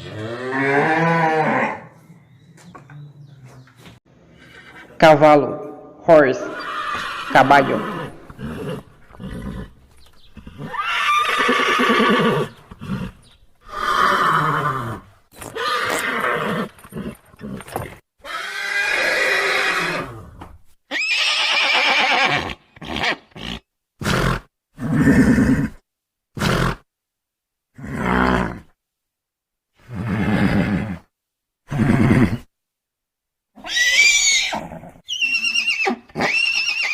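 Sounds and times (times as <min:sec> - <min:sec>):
horses neighing: 0:04.2 - 0:05.1, 0:06.3 - 0:25.8, 0:33.6 - 0:36.9
horse snorts: 0:06.5 - 0:18.6, 0:22.4 - 0:25.8, 0:26.4 - 0:26.8.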